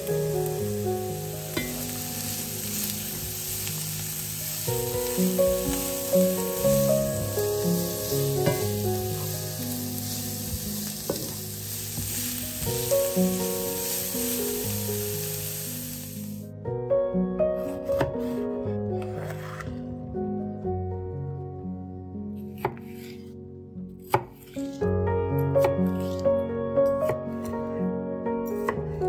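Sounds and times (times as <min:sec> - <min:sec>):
vegetables sizzling in a pan: 0:00.0 - 0:16.4
background music: 0:00.0 - 0:29.0.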